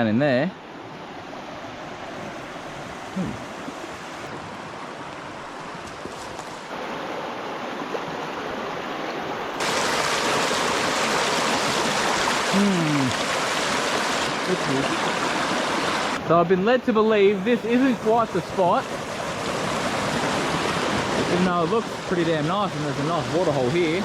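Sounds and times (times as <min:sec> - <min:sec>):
river rushing over rocks: 0:06.4 - 0:16.5, 0:17.1 - 0:24.0.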